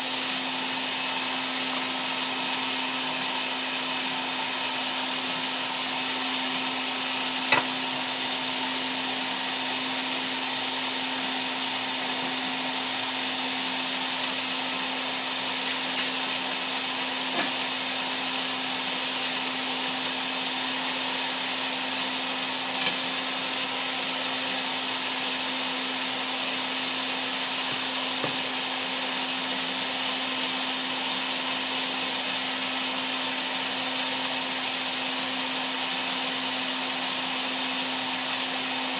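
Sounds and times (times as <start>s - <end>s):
steady blower hum: 0.0s - 38.9s
burner hissing: 0.1s - 11.0s, 11.8s - 29.9s.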